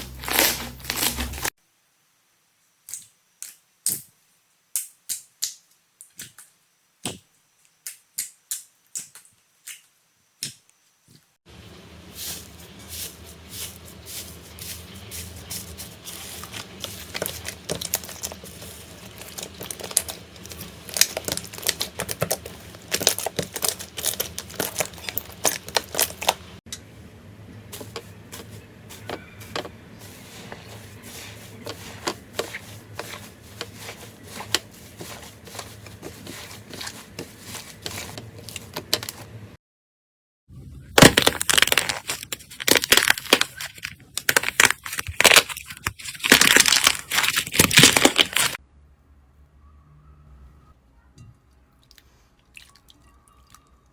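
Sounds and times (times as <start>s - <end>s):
slime clicking and crackling: 16.2s - 26.6s, 41.0s - 48.6s.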